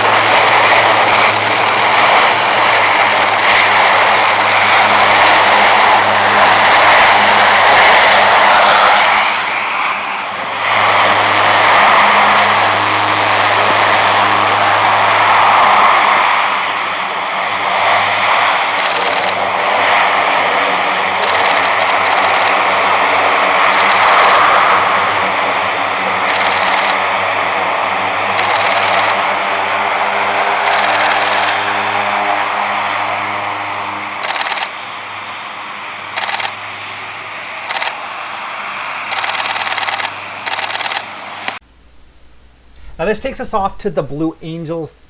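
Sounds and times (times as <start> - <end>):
turboprop aircraft drone: 0.0 - 43.7
camera shutter clicks: 18.8 - 19.4, 21.2 - 22.5, 23.7 - 24.4, 26.3 - 27.0, 28.4 - 29.2, 30.7 - 31.6, 34.2 - 34.7, 36.2 - 36.5, 37.7 - 38.0, 39.1 - 41.1.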